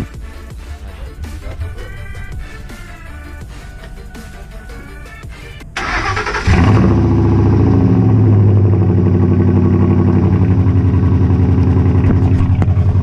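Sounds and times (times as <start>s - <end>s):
engine cranking: 0.0s - 13.0s
engine idling: 0.0s - 13.0s.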